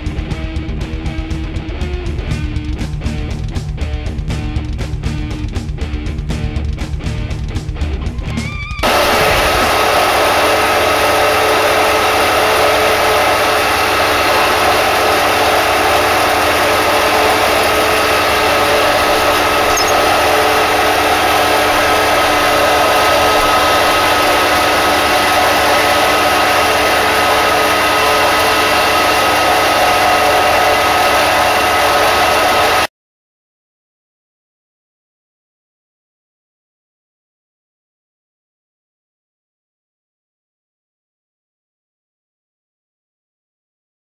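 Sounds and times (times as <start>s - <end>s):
belt grinder running: 8.8s - 32.9s.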